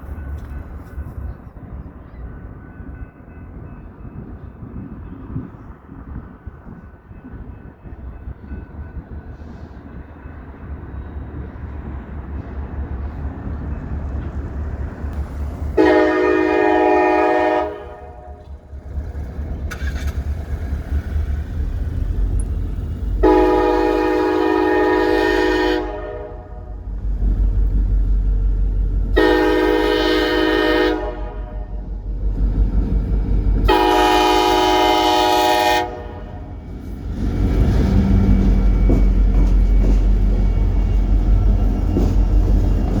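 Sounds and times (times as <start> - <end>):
locomotive engine rumble: 0.0 - 43.0
train air horn blasts: 15.8 - 18.4, 23.2 - 26.8, 29.2 - 31.8, 33.6 - 36.5.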